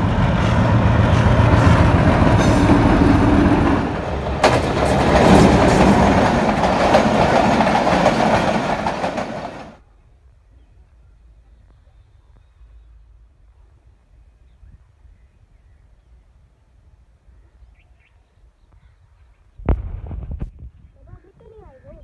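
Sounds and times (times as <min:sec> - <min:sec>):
train wheels clattering on rails: 0:00.0 - 0:09.8
diesel locomotive engine rumble: 0:00.0 - 0:10.0.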